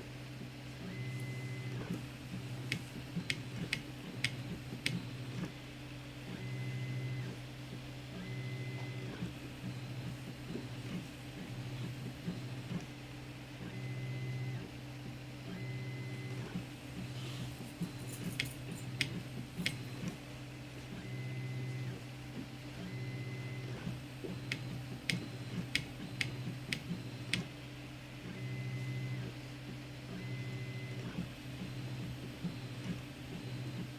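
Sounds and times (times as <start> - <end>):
sharp printer clicks: 17.8 - 20.2, 23.4 - 27.5.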